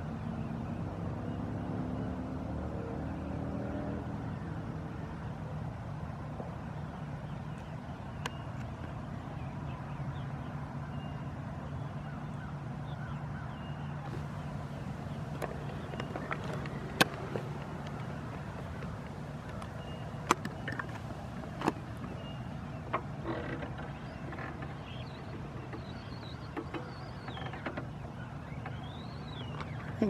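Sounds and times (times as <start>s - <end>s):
faint bird chirps: 12.0s - 30.0s
sharp clicks: 14.1s - 22.1s
wheelchair motor humming: 14.1s - 22.3s.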